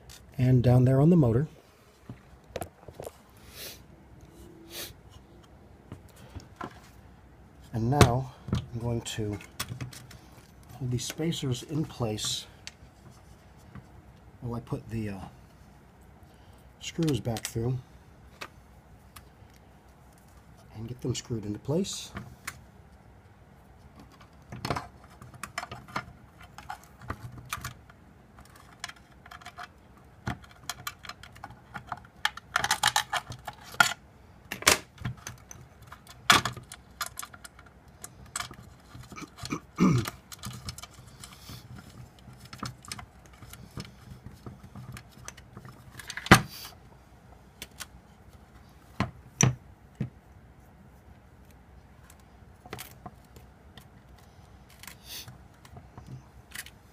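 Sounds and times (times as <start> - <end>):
small metal parts clicking: 28.4 - 34.0.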